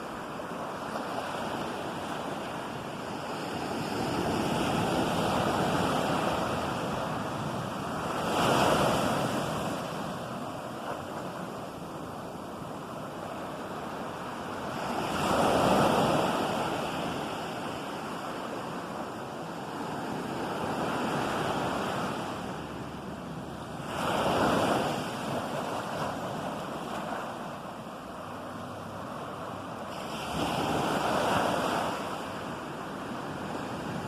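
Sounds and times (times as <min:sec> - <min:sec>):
waves crashing on shore: 0:00.0 - 0:34.0.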